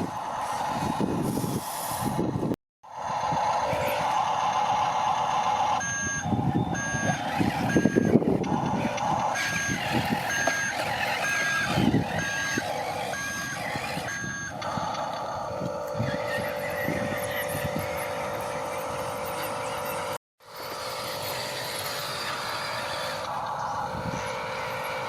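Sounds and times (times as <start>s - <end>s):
electric motor hum: 0.0s - 25.0s
short electronic reversing beeps: 3.8s - 14.8s.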